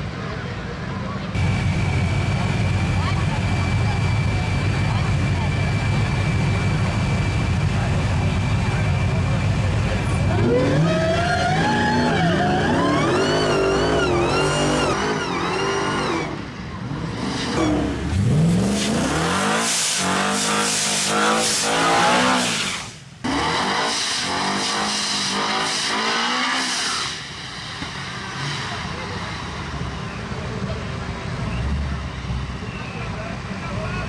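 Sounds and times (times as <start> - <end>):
tire noise: 0.0 - 34.0
truck engines at full throttle: 0.0 - 34.0.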